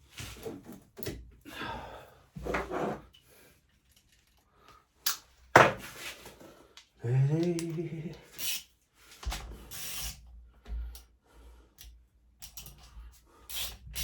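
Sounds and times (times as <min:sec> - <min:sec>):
tools knocking on a workbench: 0:05.6 - 0:05.8
voice humming: 0:07.0 - 0:08.3.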